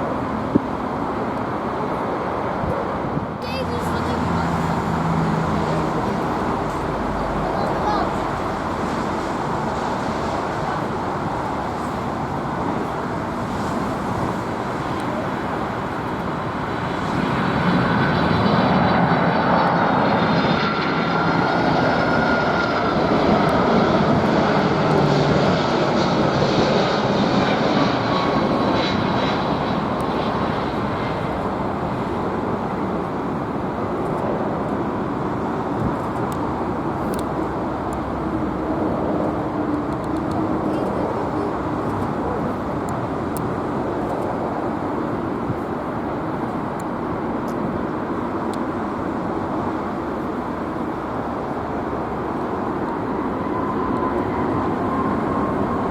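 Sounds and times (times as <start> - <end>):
high engine whine: 0.0 - 55.9
jet engines roaring: 0.0 - 55.9.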